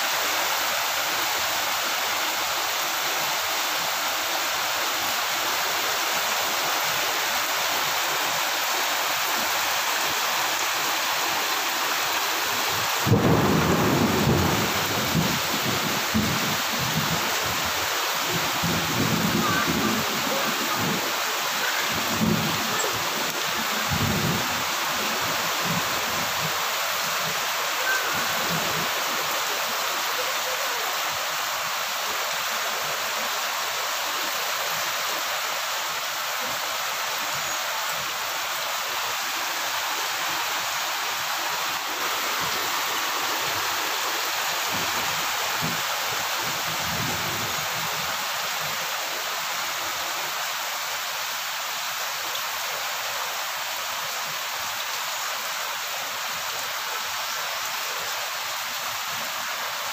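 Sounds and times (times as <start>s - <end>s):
heavy rain on foliage: 0.0s - 59.9s
thunder rumble: 13.0s - 17.2s.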